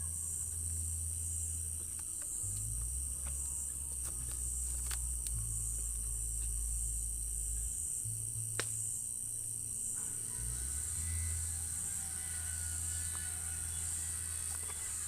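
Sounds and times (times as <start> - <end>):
crickets chirring: 0.0 - 15.0
low distant hum: 0.0 - 15.0
sharp click: 8.5 - 9.0.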